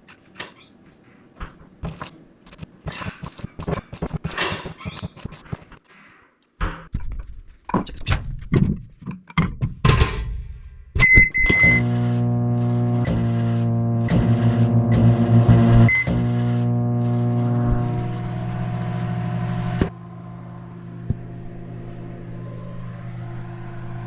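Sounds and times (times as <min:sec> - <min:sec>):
microwave beeps: 0:11.0 - 0:11.9, 0:15.9 - 0:16.2
microwave oven humming: 0:11.4 - 0:24.0.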